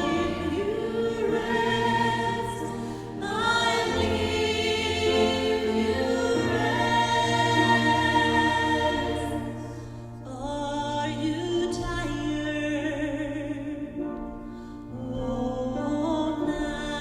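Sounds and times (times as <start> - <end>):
gospel choir singing: 0.0 - 10.4
musical accompaniment: 0.0 - 17.0.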